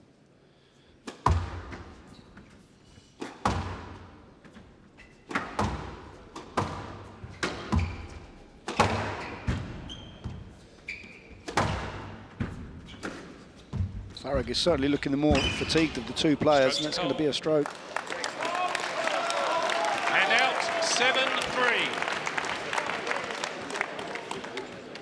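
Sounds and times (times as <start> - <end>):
squash ball hits: 1.1 - 1.9, 3.2 - 4.0, 5.3 - 9.9, 11.4 - 13.9
shoes squeaking on court floor: 1.1 - 3.6, 4.4 - 17.4.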